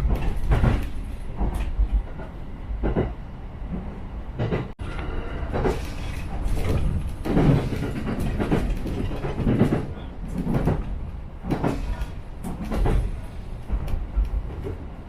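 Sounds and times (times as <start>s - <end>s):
low train rumble: 0.0s - 15.0s
train wheels knocking over rail joints: 5.5s - 14.8s.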